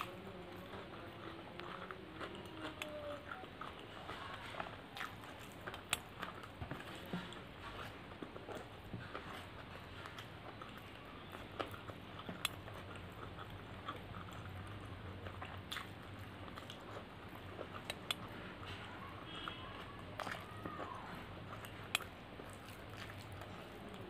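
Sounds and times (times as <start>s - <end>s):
chewing and mouth sounds: 0.0s - 24.0s
lip smacks: 7.8s - 24.0s.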